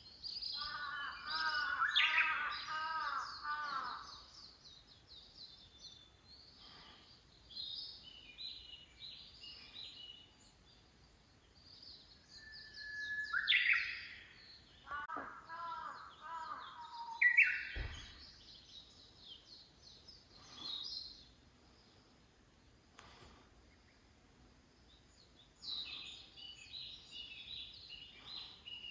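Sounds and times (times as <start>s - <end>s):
birds chirping: 0.0s - 28.9s
loud falling bird calls: 0.4s - 4.6s, 13.2s - 21.3s.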